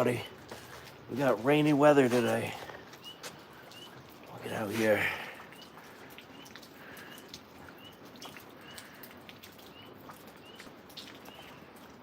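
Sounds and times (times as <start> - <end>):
faint drips: 0.0 - 12.0
rain hissing: 0.0 - 12.0
tree frogs chirping: 2.4 - 9.0.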